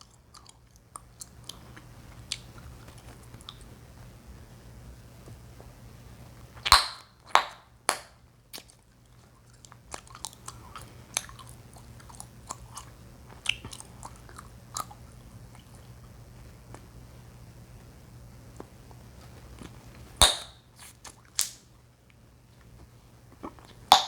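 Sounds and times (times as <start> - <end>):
chewing gum popping: 0.0 - 3.7, 6.6 - 16.9, 23.3 - 24.0
gum chewing with snaps and smacks: 0.0 - 3.8, 6.6 - 16.9, 18.6 - 22.2, 22.8 - 24.0.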